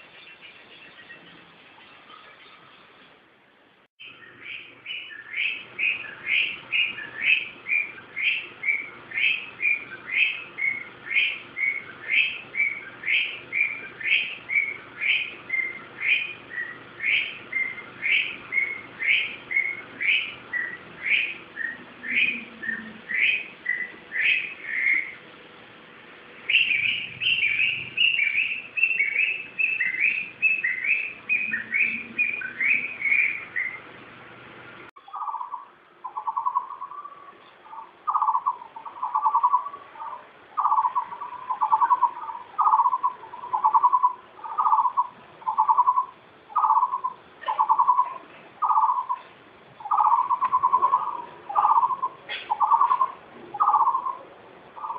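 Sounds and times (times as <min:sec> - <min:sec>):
bird giving lower notes: 0:35.0 - 0:54.9.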